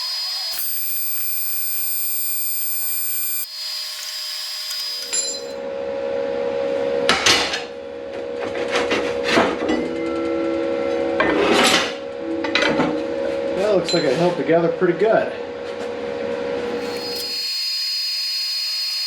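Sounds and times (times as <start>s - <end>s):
steady hum: 0.0s - 3.6s
machine whine: 0.0s - 5.8s, 16.6s - 19.0s.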